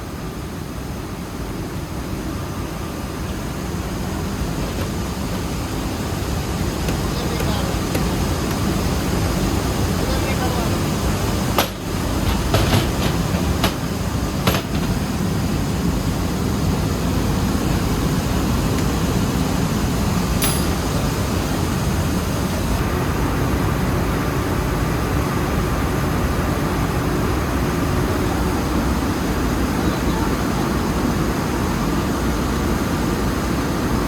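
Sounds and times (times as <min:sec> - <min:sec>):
sharp knocks: 0:11.6 - 0:15.1.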